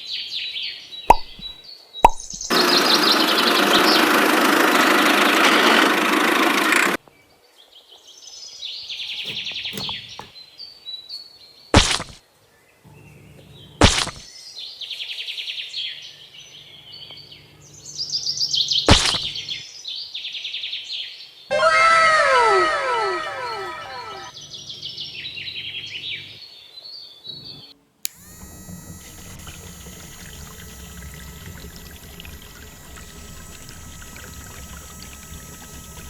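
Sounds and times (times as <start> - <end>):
sharp clicks: 1.1 - 2.6, 9.3 - 10.3, 28.1 - 36.0
birds chirping trills: 27.3 - 36.0.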